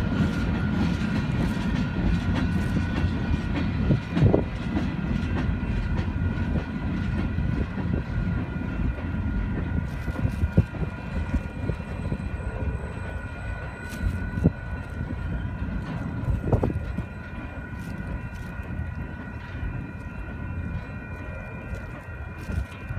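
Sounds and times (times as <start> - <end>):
train rumbling on rails: 0.0 - 22.9.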